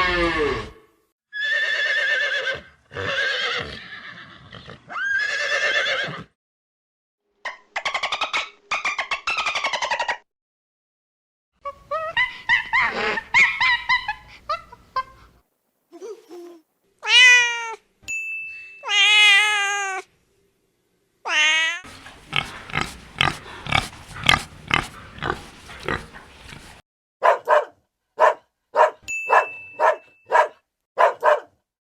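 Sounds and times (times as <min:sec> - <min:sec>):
animal calls: 0:21.8 - 0:26.8.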